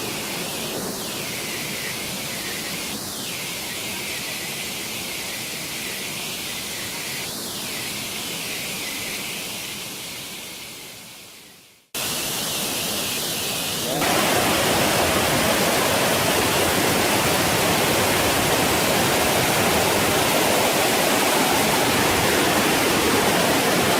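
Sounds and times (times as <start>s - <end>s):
waterfall rushing: 12.0s - 23.9s.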